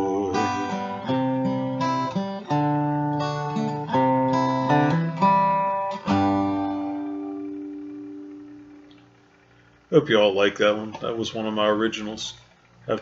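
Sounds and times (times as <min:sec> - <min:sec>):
acoustic guitar strumming chords: 0:00.0 - 0:09.2.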